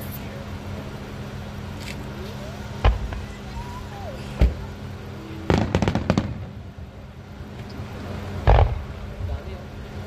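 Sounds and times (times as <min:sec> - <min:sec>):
crackling firework pops: 0:02.8 - 0:03.3, 0:05.5 - 0:06.5, 0:08.4 - 0:09.0
firework bang: 0:02.8 - 0:03.4, 0:05.4 - 0:06.7, 0:08.4 - 0:09.0.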